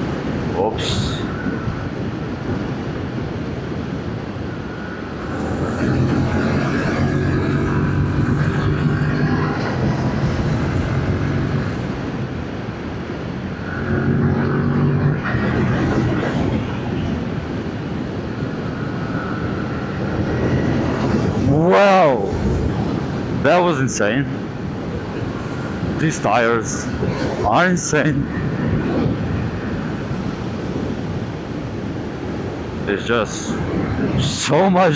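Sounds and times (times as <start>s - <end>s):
wind on microphone: 0.0s - 34.9s
motorcycle engine running: 5.2s - 11.9s.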